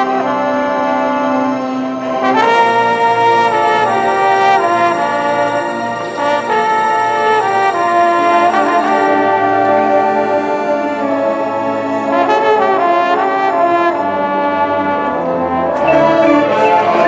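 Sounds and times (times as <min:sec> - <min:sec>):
brass band holding chords: 0:00.0 - 0:17.0.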